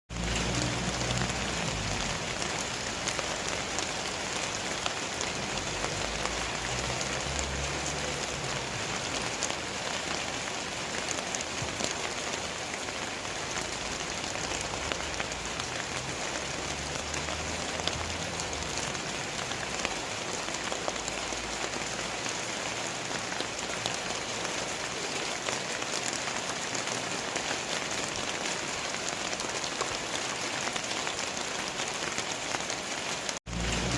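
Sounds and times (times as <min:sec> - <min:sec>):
heavy rain pouring: 0:00.1 - 0:33.9
low rumbling: 0:33.5 - 0:33.9.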